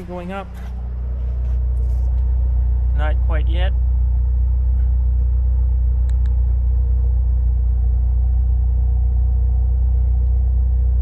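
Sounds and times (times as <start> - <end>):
car engine idling: 0.0 - 11.0
faint short clicks: 6.0 - 6.4.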